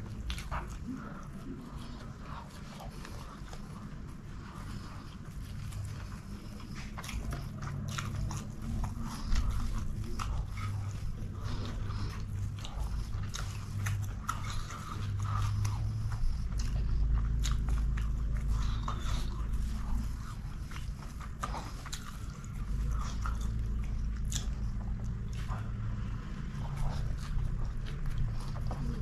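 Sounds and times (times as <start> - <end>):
person chewing with wet clicks: 0.0 - 29.0.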